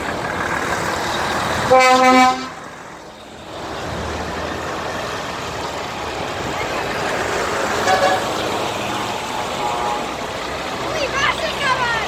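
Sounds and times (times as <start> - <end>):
road traffic noise: 0.0 - 12.0
vehicle horn blast: 1.7 - 2.6, 7.8 - 8.4.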